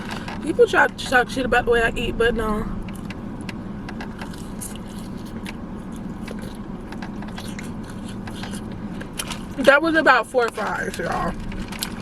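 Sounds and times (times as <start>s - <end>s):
steady low hum: 0.0s - 12.0s
person chewing fries: 4.0s - 9.6s, 10.9s - 12.0s.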